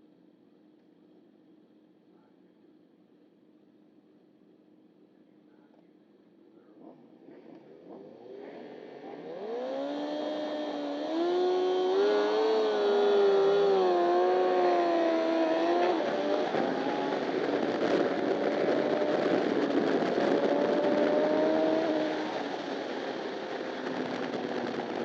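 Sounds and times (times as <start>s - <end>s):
motorcycle engine revving: 6.8s - 25.0s.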